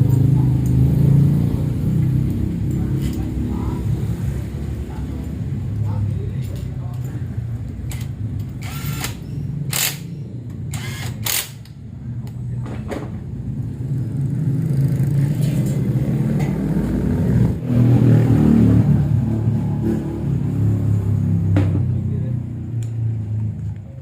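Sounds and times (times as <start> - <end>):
steady motor hum: 8.6 - 10.0.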